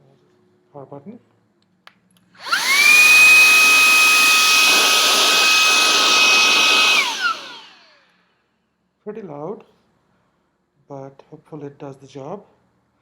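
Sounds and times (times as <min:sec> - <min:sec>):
handheld vacuum motor whine: 0:02.4 - 0:08.1.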